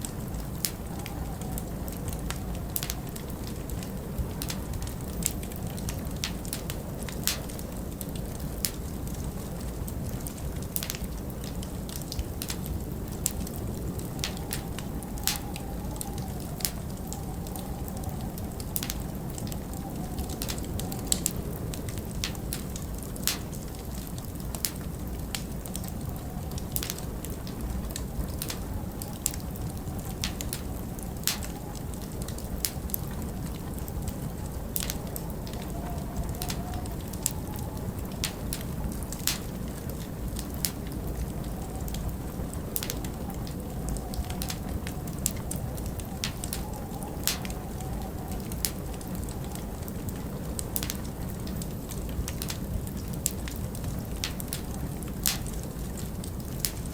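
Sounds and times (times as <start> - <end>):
low wind rumble: 0.0 - 56.9
wood fire crackling: 0.0 - 56.9
wavering wind whistle: 0.1 - 6.0, 13.4 - 22.8, 25.9 - 51.0.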